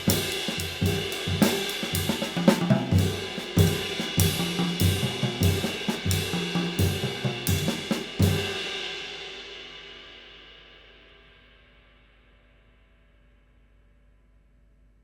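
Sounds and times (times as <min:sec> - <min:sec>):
drum kit groove: 0:00.0 - 0:09.4.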